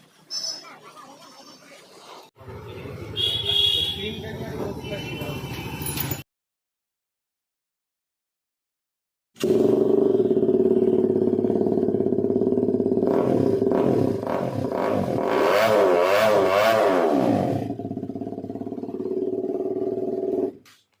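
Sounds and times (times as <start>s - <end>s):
motorcycle engine idling and revving: 2.4s - 6.2s, 9.4s - 20.8s.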